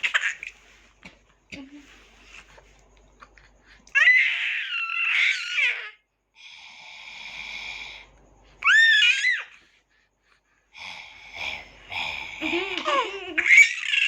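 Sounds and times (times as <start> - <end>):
baby squealing: 4.0 - 6.0, 8.6 - 9.5, 13.4 - 14.0.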